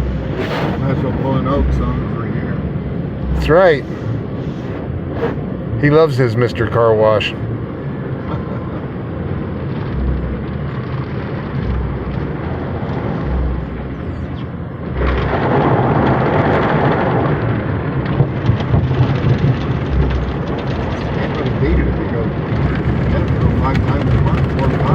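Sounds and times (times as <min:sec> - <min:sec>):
dull thuds: 0:00.0 - 0:01.9
water rushing against car body: 0:00.0 - 0:07.3, 0:08.8 - 0:24.9.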